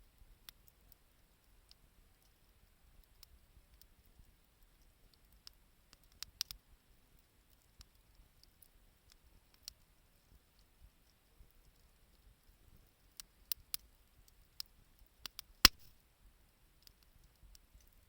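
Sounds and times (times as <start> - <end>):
wood fire crackling: 0.2 - 9.8.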